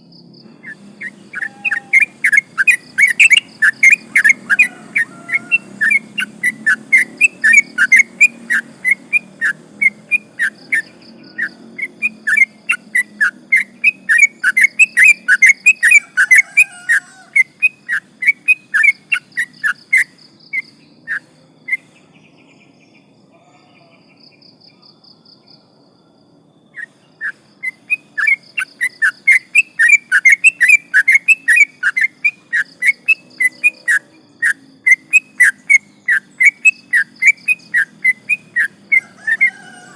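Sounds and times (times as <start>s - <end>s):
bird whistling loud notes: 0.6s - 21.8s.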